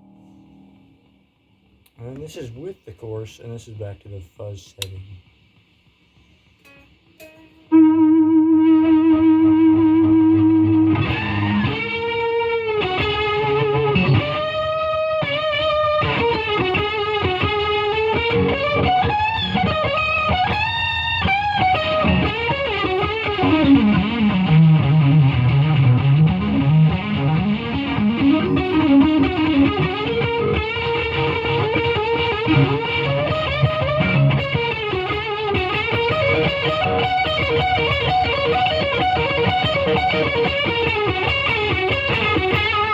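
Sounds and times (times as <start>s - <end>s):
fuzzy electric guitar lead: 0.0s - 1.6s, 6.6s - 42.9s.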